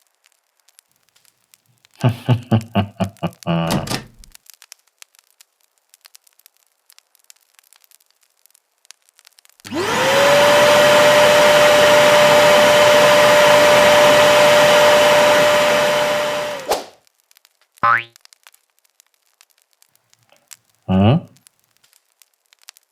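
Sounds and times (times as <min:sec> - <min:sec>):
electric blower motor whining: 0:09.7 - 0:16.9.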